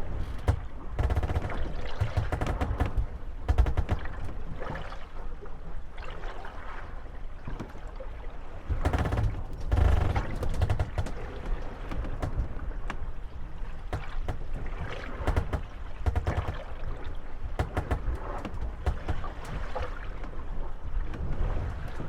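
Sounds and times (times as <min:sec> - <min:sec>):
boats knocking and creaking: 0:00.0 - 0:05.7, 0:07.4 - 0:22.0
water sloshing around hulls: 0:00.0 - 0:22.0
low thuds: 0:00.2 - 0:04.4, 0:17.6 - 0:19.4.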